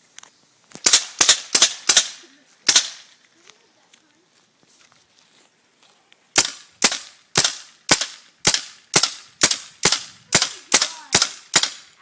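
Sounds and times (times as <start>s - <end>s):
paintball gun firing: 0.8s - 3.0s, 6.4s - 12.0s.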